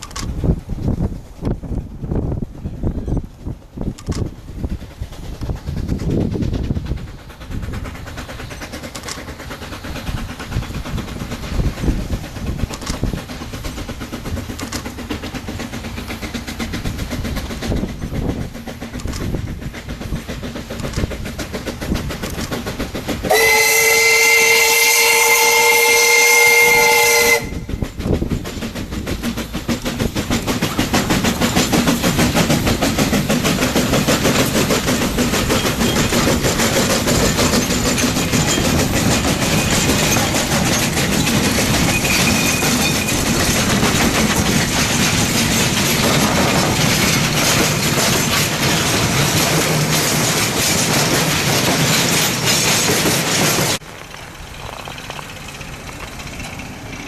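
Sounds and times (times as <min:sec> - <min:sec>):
steam locomotive exhaust beats: 0:00.0 - 0:57.0
wheels clattering on rail joints: 0:00.0 - 0:57.0
steam whistle: 0:23.3 - 0:27.7.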